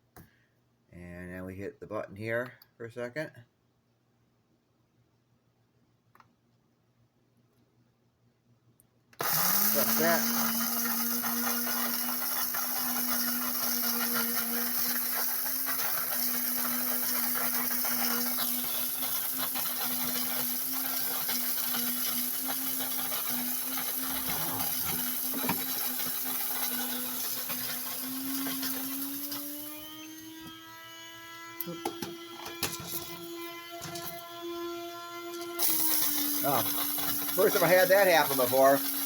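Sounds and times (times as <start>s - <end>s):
coffee grinder grinding beans: 9.2s - 39.0s.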